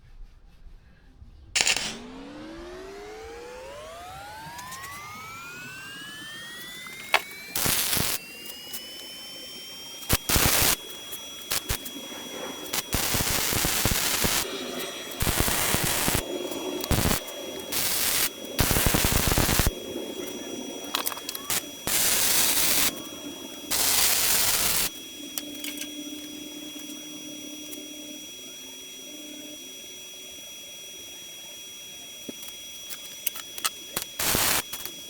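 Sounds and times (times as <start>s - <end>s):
faint high whine: 1.3s - 35.0s
sharp clicks: 1.6s - 26.2s, 32.2s - 35.0s
arc welder crackling: 1.6s - 35.0s.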